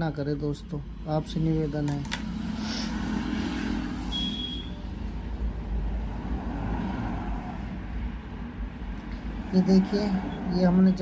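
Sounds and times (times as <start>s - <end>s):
road traffic rumble: 0.0s - 11.0s
short high-pitched beep: 4.1s - 4.8s.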